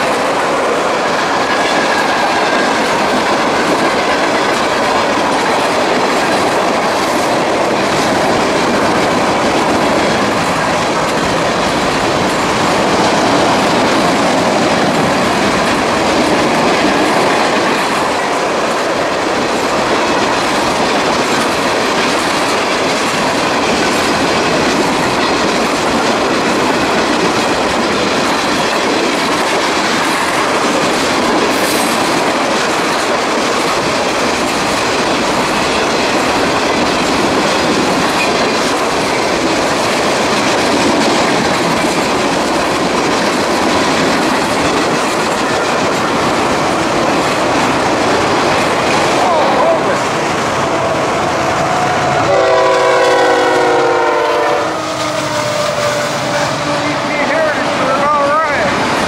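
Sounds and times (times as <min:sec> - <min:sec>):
train wheels clattering on rails: 0:00.0 - 0:59.0.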